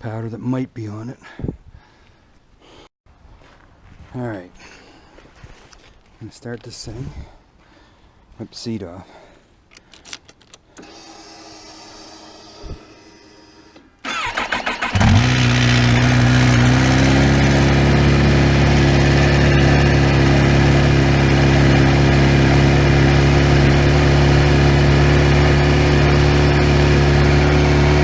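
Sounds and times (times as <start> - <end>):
starter cranking: 14.0 - 17.8
motorcycle engine idling: 14.8 - 28.0.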